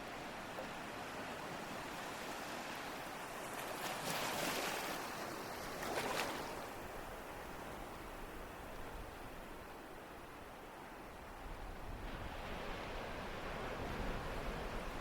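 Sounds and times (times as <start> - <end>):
ocean waves breaking: 0.0 - 7.1.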